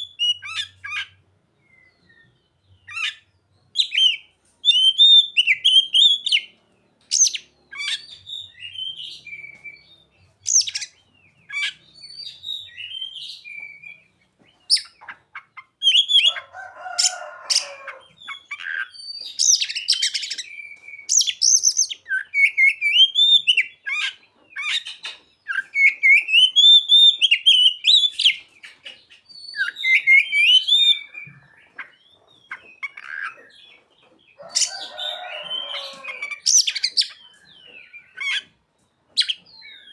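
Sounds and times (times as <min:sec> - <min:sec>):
songbird singing whistled phrases: 0:00.0 - 0:03.2, 0:03.8 - 0:06.5, 0:07.1 - 0:15.1, 0:15.8 - 0:16.4, 0:18.2 - 0:28.5, 0:29.2 - 0:33.5.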